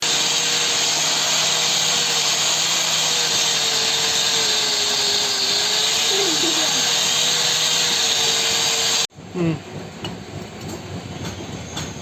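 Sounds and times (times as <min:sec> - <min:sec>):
electric power tool whining: 0:00.0 - 0:09.1.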